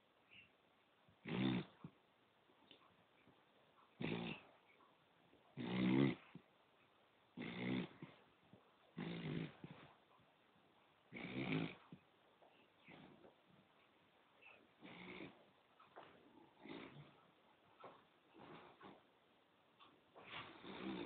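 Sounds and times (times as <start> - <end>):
dog snoring: 1.2 - 2.0, 4.0 - 4.6, 5.6 - 6.4, 7.4 - 8.2, 8.9 - 9.9, 11.1 - 12.0, 14.8 - 15.4, 16.4 - 17.2, 20.4 - 21.0.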